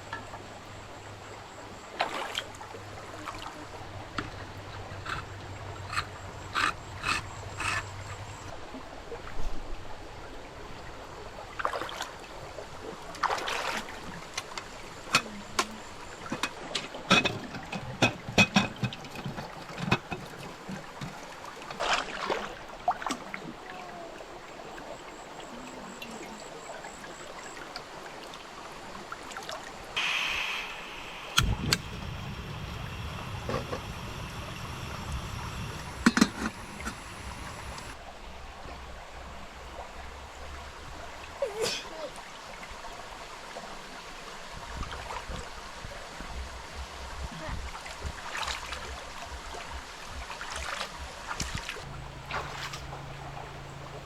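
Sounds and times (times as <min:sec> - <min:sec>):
stream trickling: 0:00.0 - 0:54.0
short hiss: 0:30.0 - 0:38.0
sharp clicks and knocks: 0:35.1 - 0:38.0.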